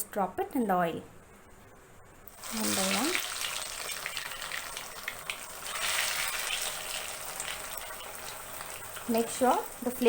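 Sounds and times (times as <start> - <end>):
oil crackles and pops: 2.3 - 9.9
deep-frying sizzle: 2.3 - 10.0.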